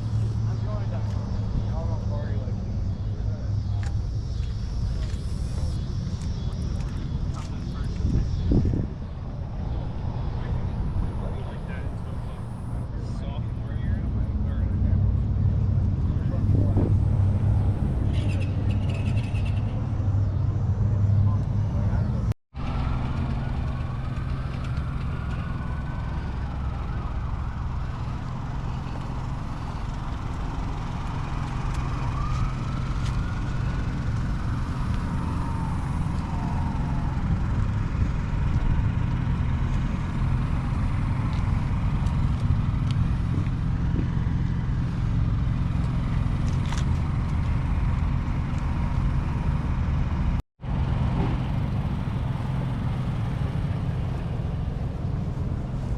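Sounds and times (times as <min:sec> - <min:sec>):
car engines rumbling: 0:00.0 - 0:55.9
siren wailing: 0:04.8 - 0:12.9, 0:22.7 - 0:38.4.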